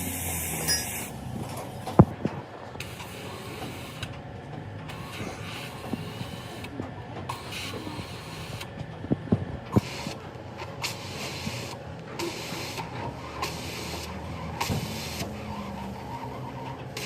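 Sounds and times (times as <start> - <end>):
engine humming: 0.0 - 11.2.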